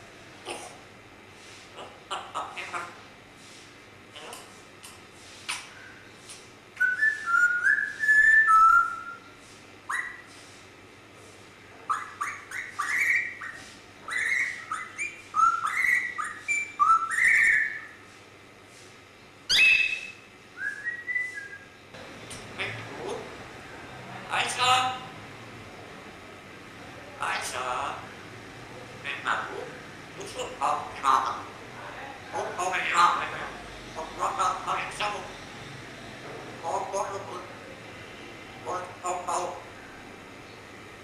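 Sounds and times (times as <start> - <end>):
parrot whistling: 6.8 - 9.2, 9.9 - 10.3, 11.9 - 18.0, 19.5 - 21.7.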